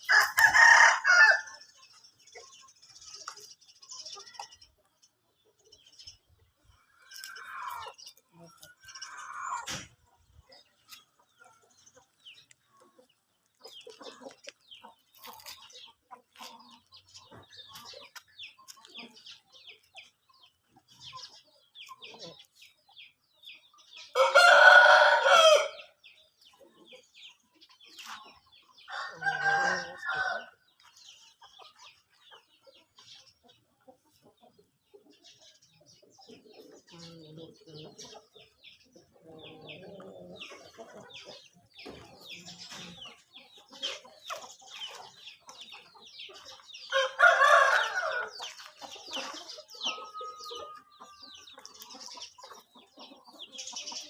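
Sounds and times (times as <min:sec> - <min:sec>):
rooster crowing: 0:24.2 - 0:25.8, 0:28.9 - 0:30.5, 0:46.9 - 0:48.3.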